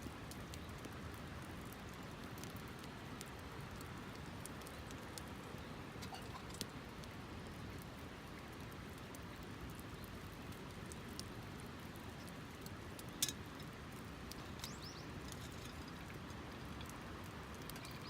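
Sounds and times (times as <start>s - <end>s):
flowing water: 0.0s - 18.0s
small clicks: 13.0s - 16.2s.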